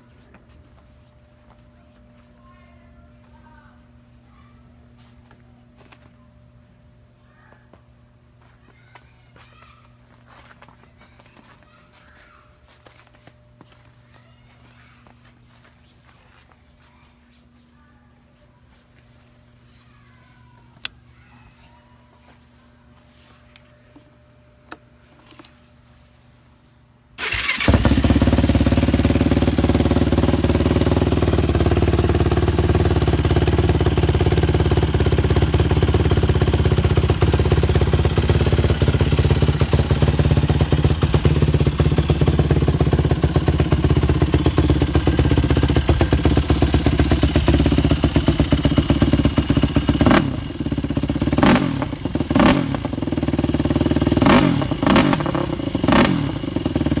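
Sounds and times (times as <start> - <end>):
engine short sharp bursts: 27.2 - 32.3, 44.4 - 57.0
quad bike engine idling: 27.2 - 57.0.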